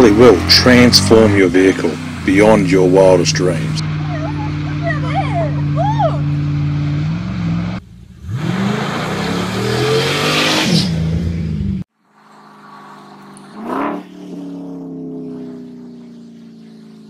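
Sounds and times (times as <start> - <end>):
tyres spraying gravel: 0.0 - 4.1
engine revving: 0.0 - 17.0.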